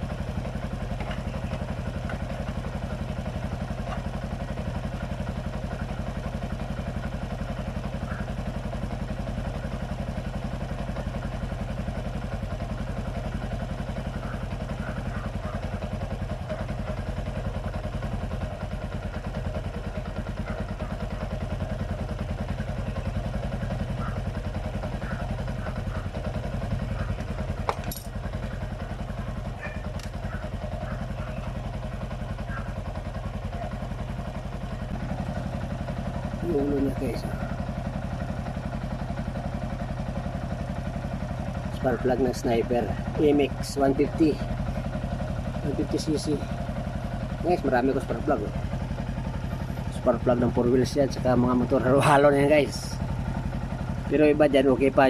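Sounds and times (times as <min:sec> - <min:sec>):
motorcycle engine idling: 0:00.0 - 0:55.0.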